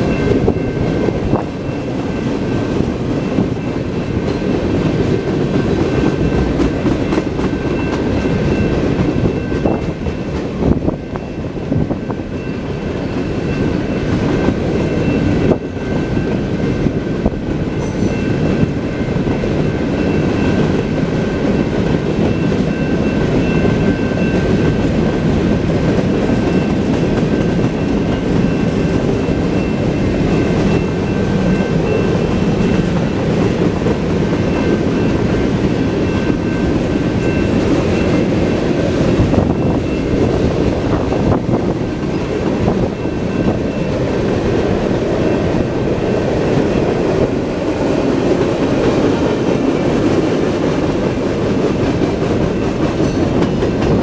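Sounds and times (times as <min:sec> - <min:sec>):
clickety-clack over rail joints: 0:00.0 - 0:54.0
steel wheels rumbling on rail: 0:00.0 - 0:54.0.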